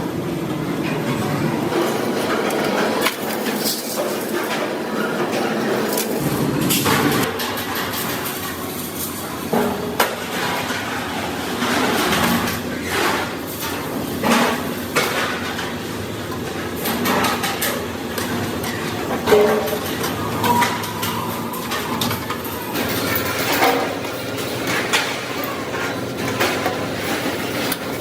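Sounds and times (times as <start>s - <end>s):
workshop noise: 0.0s - 28.0s.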